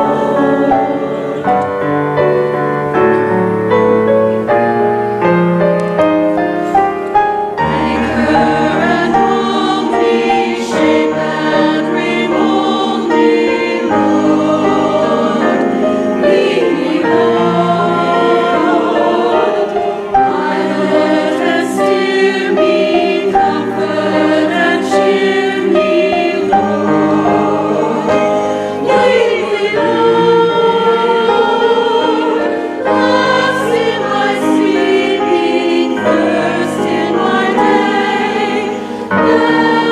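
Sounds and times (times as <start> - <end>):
choir singing a hymn: 0.0 - 39.9
instrumental accompaniment: 0.0 - 39.9.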